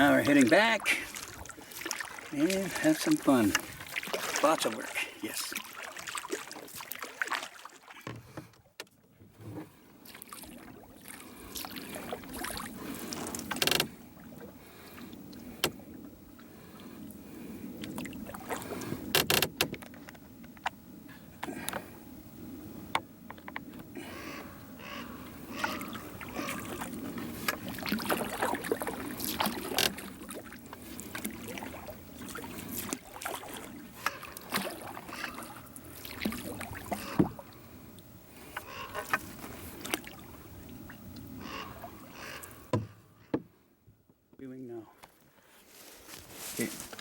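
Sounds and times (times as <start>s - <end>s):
water sloshing: 0.0s - 8.8s, 9.4s - 17.0s, 17.7s - 19.1s, 25.1s - 37.7s, 38.4s - 42.7s
knocks against canoe hull: 42.7s - 43.5s.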